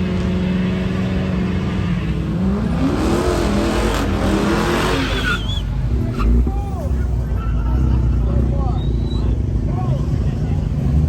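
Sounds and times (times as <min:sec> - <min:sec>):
car engine revving: 0:00.0 - 0:06.6.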